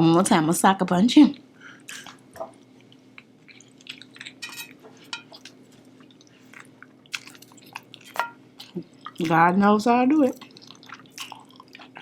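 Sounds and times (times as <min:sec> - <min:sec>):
chewing with wet mouth clicks: 0:01.9 - 0:04.5, 0:05.2 - 0:09.4, 0:10.2 - 0:12.0
dishes and utensils clinking: 0:04.4 - 0:05.4.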